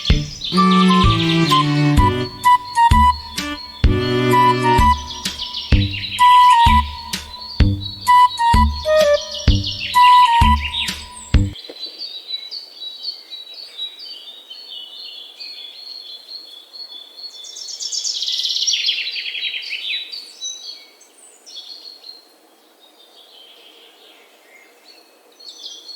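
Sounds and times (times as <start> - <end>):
small birds chirping and trilling: 0.0 - 11.4.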